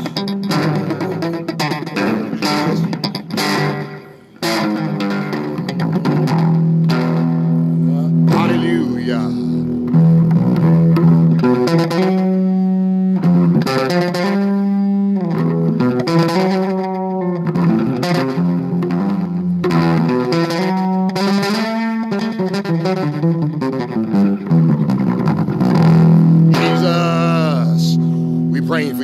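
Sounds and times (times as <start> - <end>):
electric bass guitar long notes: 0.0 - 29.0.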